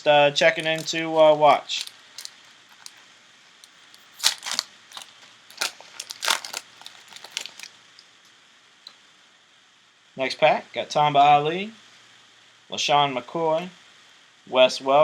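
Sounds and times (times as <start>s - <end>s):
card wrapper crinkling: 0.0s - 3.0s, 3.6s - 7.7s.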